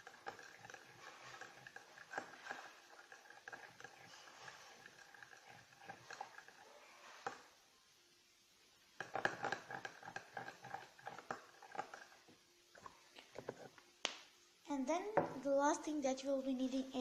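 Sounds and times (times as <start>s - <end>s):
utensil scraping a bowl: 0.0s - 7.6s, 9.0s - 13.8s.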